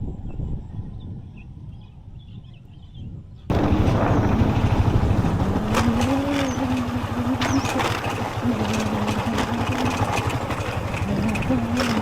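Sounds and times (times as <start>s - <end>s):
vehicle engine running: 3.5s - 12.0s.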